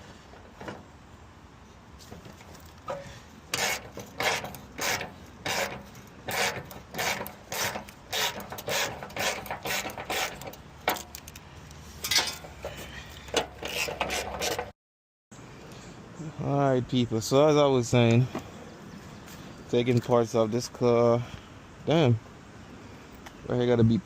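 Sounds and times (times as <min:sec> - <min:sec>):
rasping scraping strokes: 0:02.9 - 0:11.1, 0:11.8 - 0:14.7.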